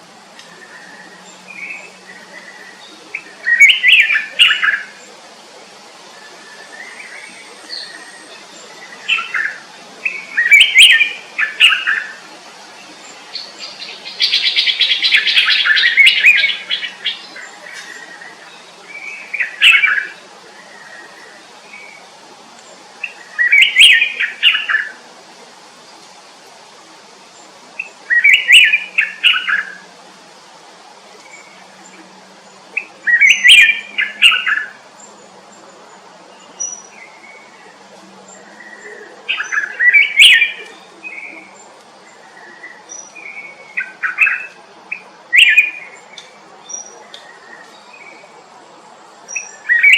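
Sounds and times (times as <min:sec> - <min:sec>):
rapid bird twittering song: 0:00.0 - 0:49.9
small birds chirping: 0:00.0 - 0:49.9
soft bird call: 0:36.4 - 0:48.4.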